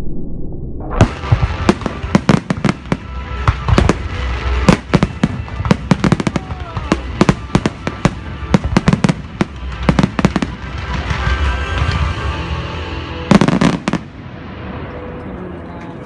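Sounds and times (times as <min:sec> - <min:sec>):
low rumble: 0:00.0 - 0:06.0
fireworks bangs and crackles: 0:00.9 - 0:15.2.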